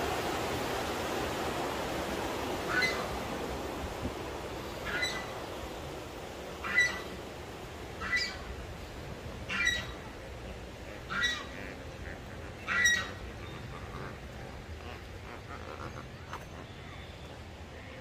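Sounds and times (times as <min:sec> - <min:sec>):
steady outdoor hiss: 0:00.0 - 0:18.0
bird squawking: 0:04.8 - 0:05.3, 0:06.6 - 0:07.1, 0:08.0 - 0:08.4, 0:09.5 - 0:10.0, 0:11.0 - 0:17.2.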